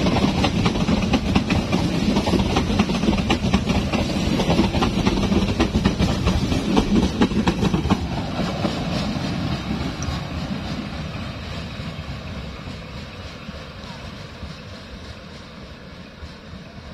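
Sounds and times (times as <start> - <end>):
low train rumble: 0.0 - 16.9
train wheels clattering: 0.0 - 16.9.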